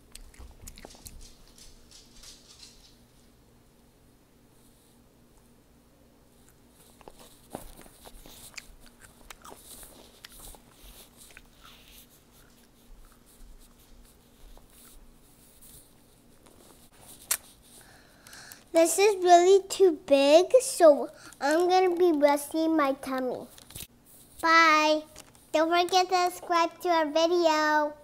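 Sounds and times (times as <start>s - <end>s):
child chewing crispy food: 0.0s - 1.9s, 6.4s - 15.1s, 16.5s - 18.7s
mouth smacks: 17.2s - 17.6s.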